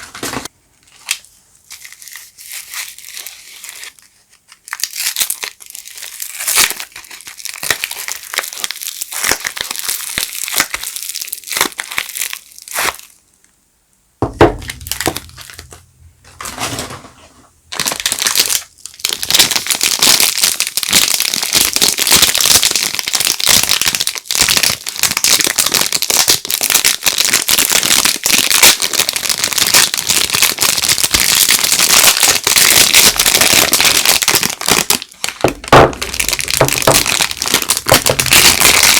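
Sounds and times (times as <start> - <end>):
soap wrapper crinkling: 0.3 - 13.4, 14.5 - 15.8, 17.7 - 38.9
sharp thump: 14.2 - 17.1.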